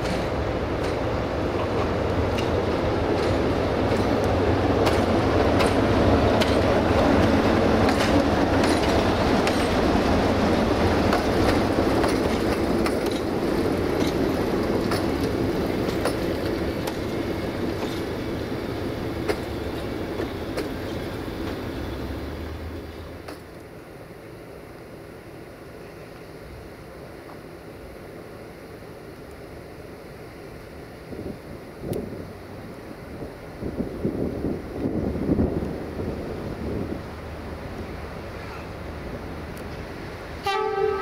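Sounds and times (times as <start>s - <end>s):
wheels clicking over rail joints: 0.0s - 22.0s, 23.1s - 23.7s
train engine drone: 0.0s - 41.0s.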